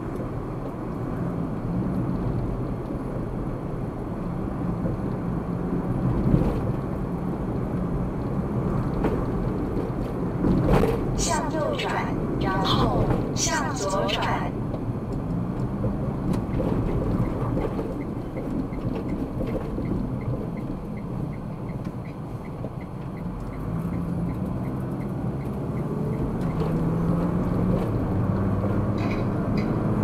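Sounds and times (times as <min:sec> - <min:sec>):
car engine and road noise: 0:00.0 - 0:30.0
turn signal ticking: 0:14.6 - 0:28.5.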